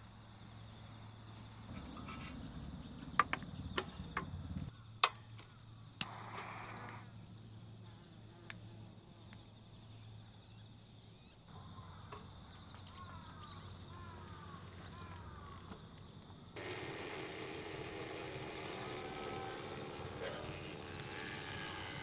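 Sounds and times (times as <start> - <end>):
insects trilling high-pitched: 6.0 - 22.0.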